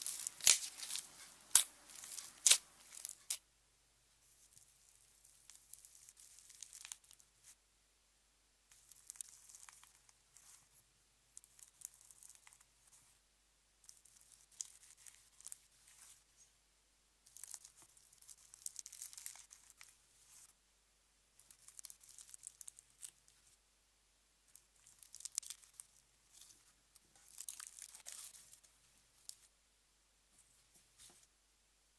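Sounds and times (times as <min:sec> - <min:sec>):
slime crackling and popping: 0:00.0 - 0:03.4, 0:05.4 - 0:07.2, 0:17.3 - 0:19.9, 0:21.4 - 0:23.2, 0:24.5 - 0:26.5, 0:27.2 - 0:28.6.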